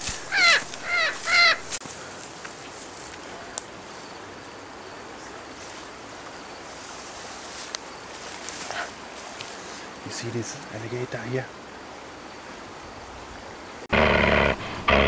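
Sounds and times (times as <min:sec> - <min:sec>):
steady background hiss: 0:00.0 - 0:15.0
bird calls falling in pitch: 0:00.3 - 0:01.7.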